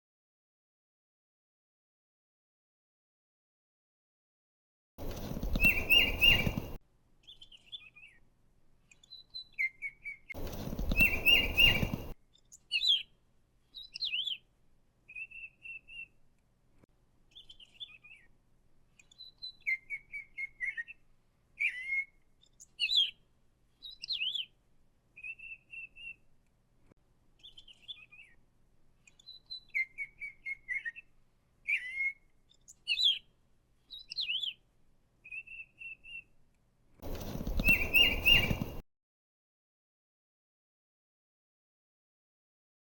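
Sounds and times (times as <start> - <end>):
parrots chirping and whistling: 5.6 - 6.8, 10.9 - 12.1, 37.2 - 38.8.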